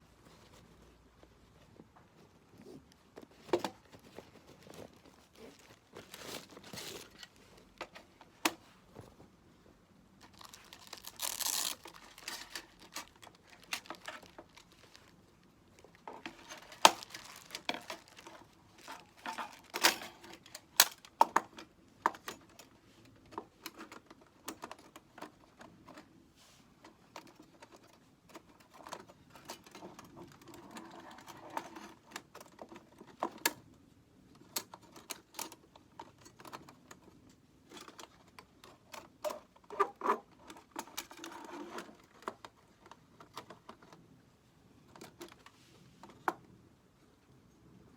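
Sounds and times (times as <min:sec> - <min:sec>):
rustling: 0:00.0 - 0:21.1
small hard objects clicking and knocking: 0:10.2 - 0:15.1, 0:15.8 - 0:22.2.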